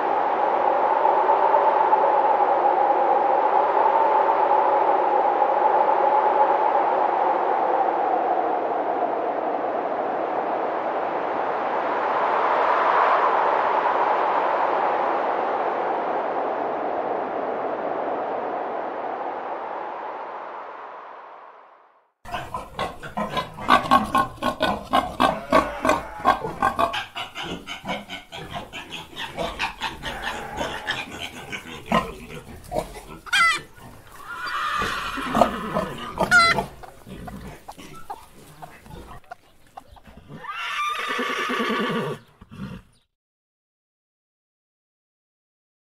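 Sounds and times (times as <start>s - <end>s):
animal calling: 22.3s - 43.0s.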